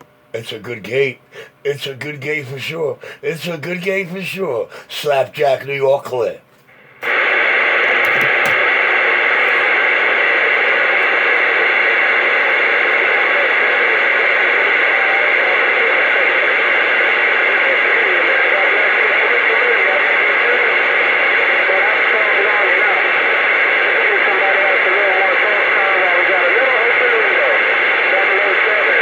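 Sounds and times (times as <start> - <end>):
faint garbled radio voices: 0.4 - 29.0
radio static rush: 6.8 - 29.0.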